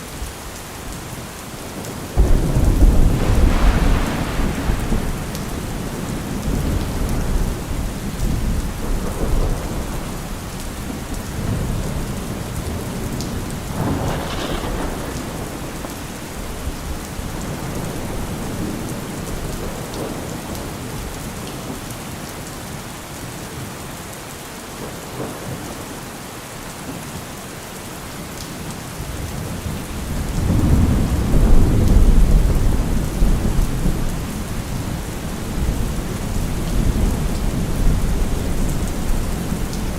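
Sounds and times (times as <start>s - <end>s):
steady rain falling: 0.0s - 39.9s
thunder crack: 2.2s - 10.2s, 13.7s - 18.8s
low rumble of thunder: 2.2s - 21.2s, 29.1s - 39.9s.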